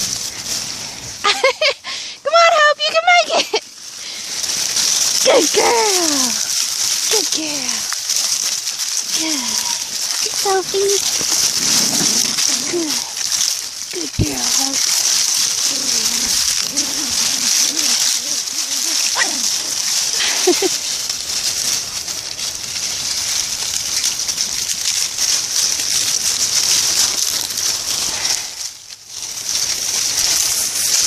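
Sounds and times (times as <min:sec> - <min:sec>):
dry leaves rustling and crackling: 0:00.0 - 0:31.0
steady high hiss: 0:00.0 - 0:31.0.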